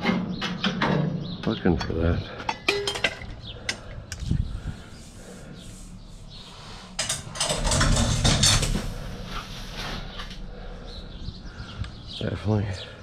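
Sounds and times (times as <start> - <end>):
steady low hum: 1.2 - 13.0
scrap metal clattering: 1.8 - 3.8, 6.9 - 10.2.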